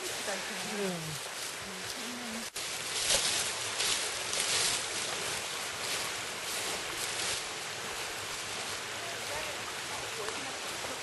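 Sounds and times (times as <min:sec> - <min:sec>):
steady rushing hiss: 0:00.0 - 0:11.0.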